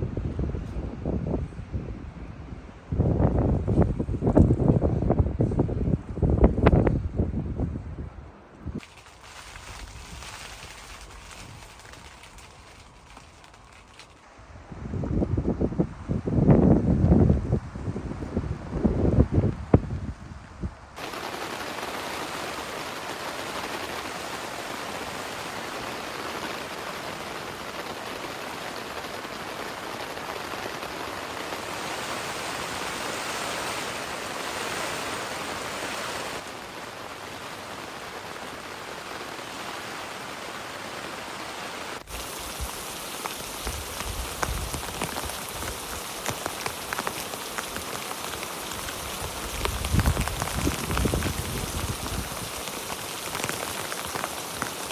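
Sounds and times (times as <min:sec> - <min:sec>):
patter of drops: 0:08.8 - 0:14.2, 0:42.1 - 0:54.9
heavy rain falling: 0:21.0 - 0:54.9.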